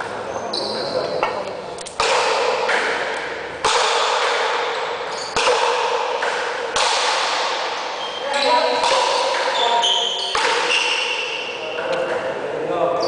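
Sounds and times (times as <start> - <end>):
ball struck with paddle: 1.9 - 8.0, 8.7 - 9.6, 10.3 - 10.9.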